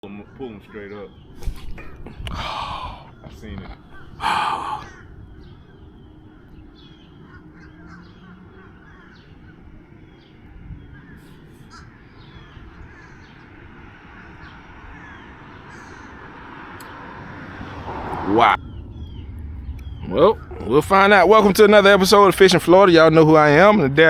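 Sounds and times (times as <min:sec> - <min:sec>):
crow cawing: 0:00.1 - 0:01.2, 0:02.3 - 0:09.7, 0:10.9 - 0:17.7
wind rumbling: 0:00.1 - 0:24.0
short high bird calls: 0:02.8 - 0:09.6.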